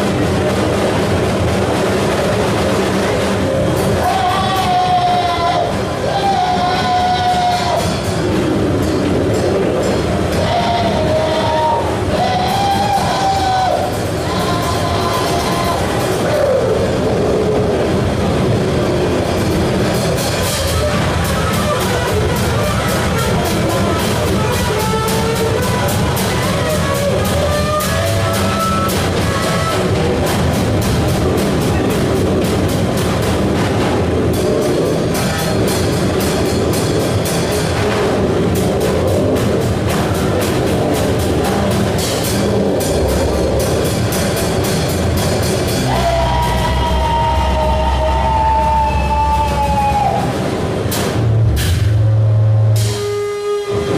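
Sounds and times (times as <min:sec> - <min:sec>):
distorted noise music: 0:00.0 - 0:53.9
sharp clattering hits: 0:12.9 - 0:48.0.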